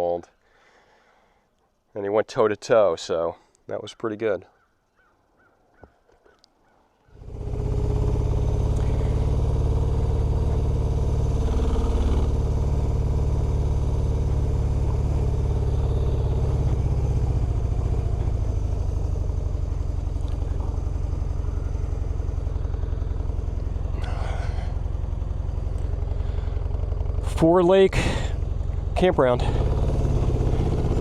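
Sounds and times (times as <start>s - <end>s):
faint clicks: 5.8s - 6.6s
motorcycle engine running: 7.2s - 31.0s.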